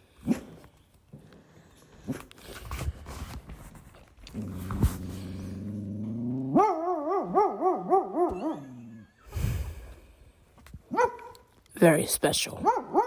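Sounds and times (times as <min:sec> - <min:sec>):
dog groaning and howling: 0:04.3 - 0:09.2.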